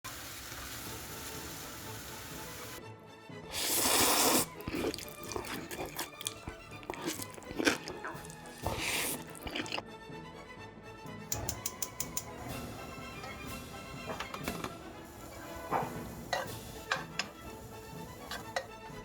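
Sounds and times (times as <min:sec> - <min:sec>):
background music: 0:00.1 - 0:19.0
cookware and utensils clinking: 0:03.6 - 0:09.8, 0:11.3 - 0:19.0
running water: 0:03.6 - 0:09.8, 0:12.3 - 0:18.8.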